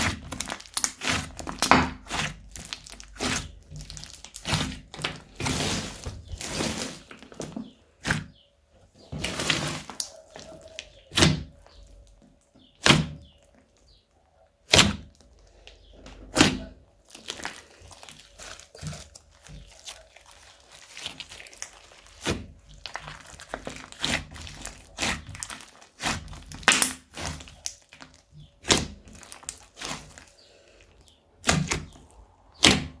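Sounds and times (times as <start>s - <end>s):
slime soft crackling: 0.0s - 7.3s, 17.0s - 31.4s
slime popping and clicking: 26.0s - 28.0s.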